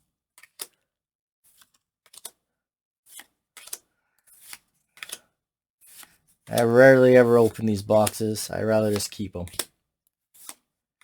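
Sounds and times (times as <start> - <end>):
cards flipping clicks: 4.5 - 5.2, 6.5 - 9.7.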